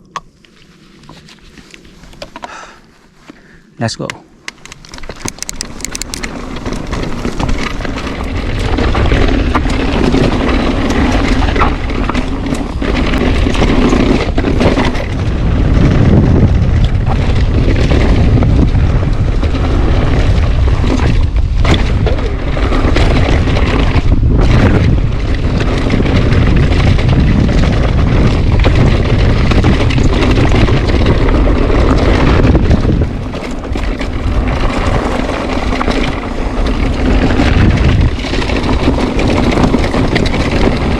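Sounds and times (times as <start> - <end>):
tyre noise: 0.0 - 40.9
bike knocks and rattles: 4.5 - 40.9
wind buffeting microphone: 4.6 - 40.9.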